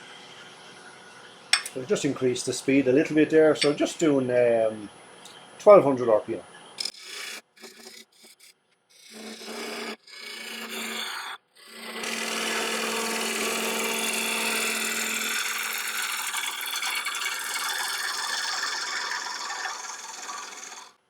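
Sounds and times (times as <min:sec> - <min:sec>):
bowl gouge cutting wood on lathe: 0:09.0 - 0:21.0.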